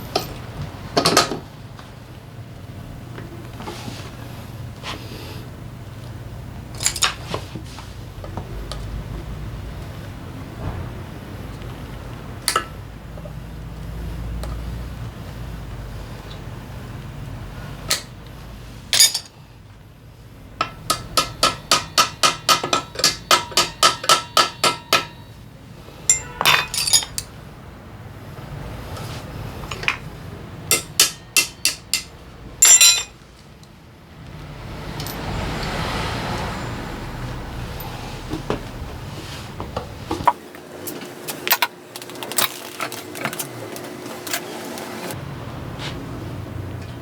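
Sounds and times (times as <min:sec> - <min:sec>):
metal clinks: 0:19.0 - 0:19.4, 0:26.1 - 0:27.3, 0:30.7 - 0:33.2
metal tool tapping on metal: 0:20.6 - 0:25.3, 0:26.1 - 0:27.3, 0:30.7 - 0:33.1.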